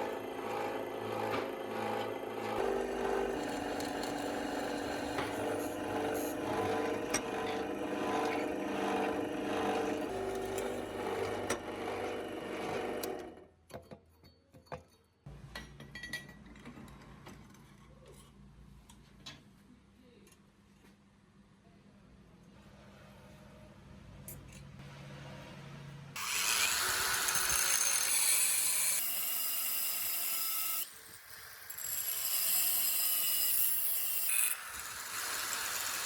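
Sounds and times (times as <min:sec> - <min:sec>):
small electric motor running: 0:00.0 - 0:13.3, 0:26.2 - 0:36.0.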